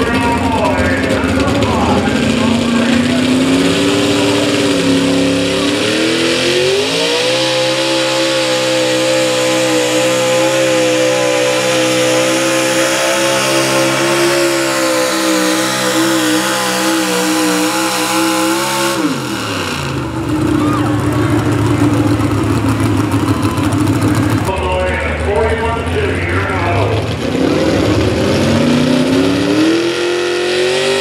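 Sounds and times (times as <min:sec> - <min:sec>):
truck engine revving at full throttle: 0:00.0 - 0:31.0.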